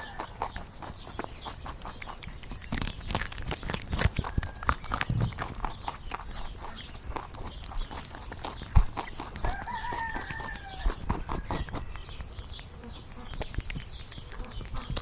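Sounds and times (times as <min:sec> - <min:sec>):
rooster crowing: 0:00.0 - 0:00.4, 0:09.4 - 0:11.0.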